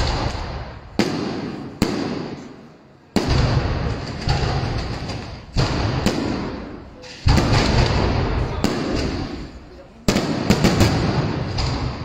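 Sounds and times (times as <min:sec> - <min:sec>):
fireworks bangs with echo: 0:00.0 - 0:12.0.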